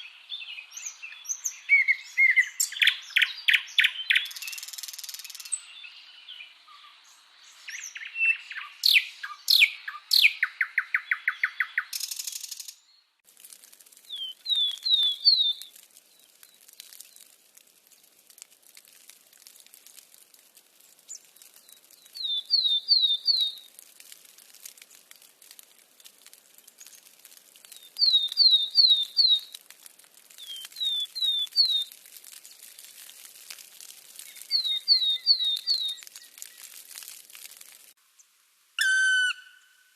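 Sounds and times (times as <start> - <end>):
birds chirping: 14.1 - 17.4, 20.8 - 23.7, 26.7 - 29.6, 34.2 - 36.8.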